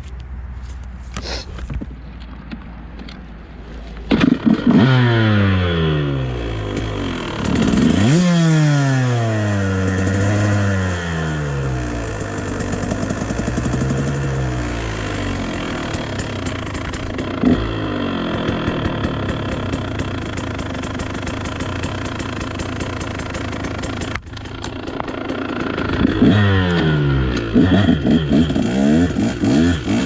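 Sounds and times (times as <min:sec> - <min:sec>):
dirt bike engine revving: 0:04.1 - 0:30.0
clatter: 0:11.9 - 0:30.0.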